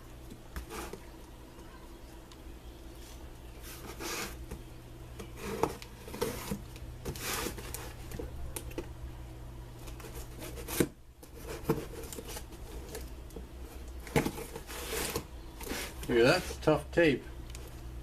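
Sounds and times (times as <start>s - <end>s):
cardboard rustling: 5.2s - 8.8s, 9.8s - 16.6s.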